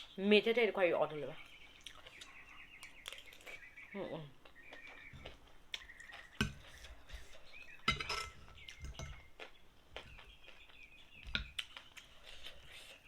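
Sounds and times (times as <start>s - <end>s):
utensils clinking on a dish: 7.8s - 9.3s.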